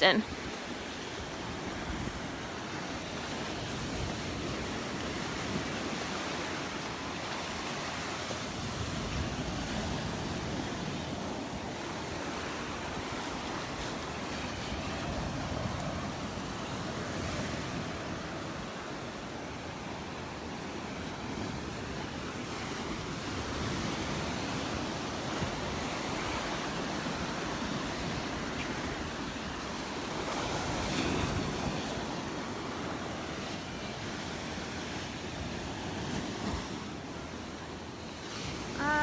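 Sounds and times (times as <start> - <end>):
surf washing on beach: 0.0 - 39.0
wind on microphone: 7.4 - 19.1, 21.2 - 32.7.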